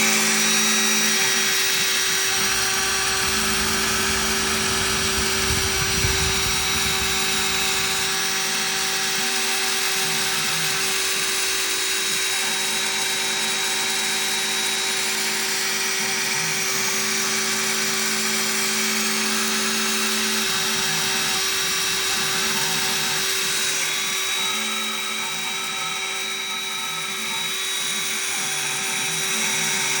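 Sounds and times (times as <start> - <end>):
cnc spindle motor whine: 0.0 - 30.0
low hum: 2.1 - 8.3.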